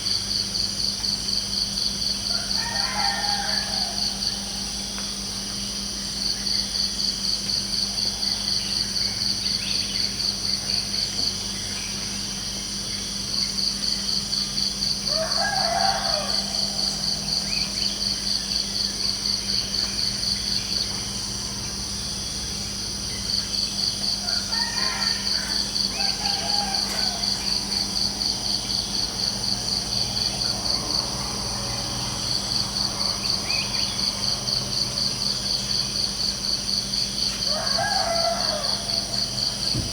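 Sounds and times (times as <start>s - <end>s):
cricket chirping in trills: 0.0s - 39.9s
insect drone: 0.0s - 39.9s
rooster crowing: 2.2s - 4.8s, 15.0s - 17.9s, 24.2s - 28.2s, 37.2s - 39.9s.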